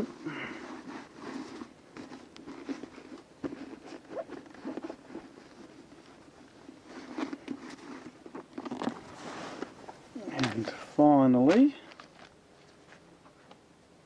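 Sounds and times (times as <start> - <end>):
cloth wiping a helmet: 0.0 - 8.3, 9.0 - 11.7.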